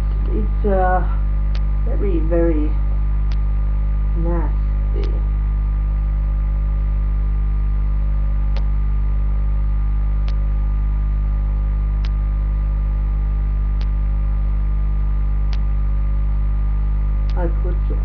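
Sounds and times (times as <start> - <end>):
electrical mains hum: 0.0 - 18.0
faint sharp clicks: 8.5 - 8.7, 10.2 - 10.4, 12.0 - 12.2, 13.8 - 14.0, 15.5 - 15.7.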